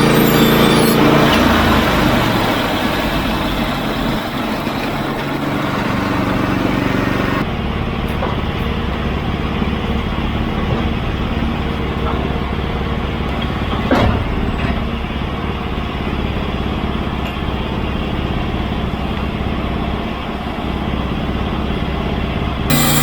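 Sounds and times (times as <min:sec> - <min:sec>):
saw blade cutting log: 0:00.0 - 0:03.0, 0:22.7 - 0:23.0
sawmill engine droning: 0:00.0 - 0:23.0.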